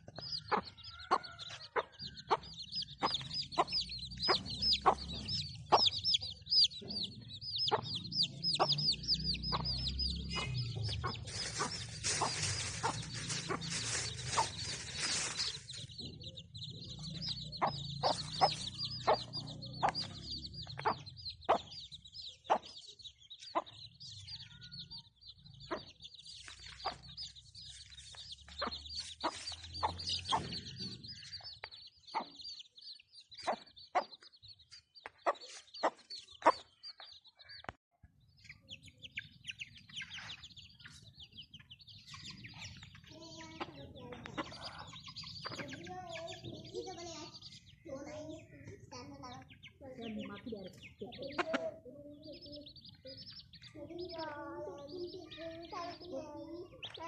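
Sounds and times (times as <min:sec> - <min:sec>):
chicks peeping: 0:00.0 - 0:57.0
hen clucking: 0:00.4 - 0:21.8, 0:22.5 - 0:22.8, 0:28.4 - 0:31.2, 0:39.2 - 0:47.2, 0:49.0 - 0:52.7.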